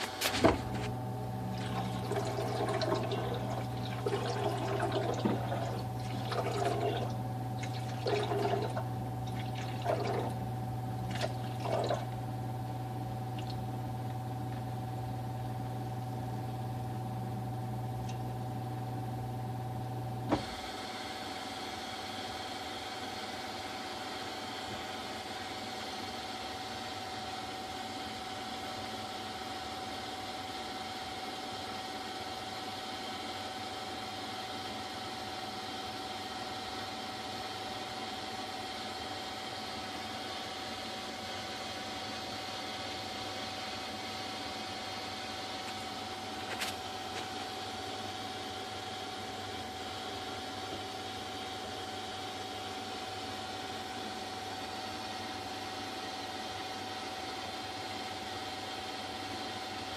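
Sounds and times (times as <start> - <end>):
dishwasher running: 0.0 - 14.7.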